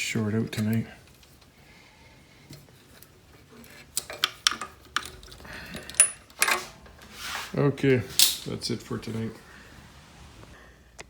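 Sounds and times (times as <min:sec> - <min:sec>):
light metallic clicks and clatter: 0:02.4 - 0:06.8.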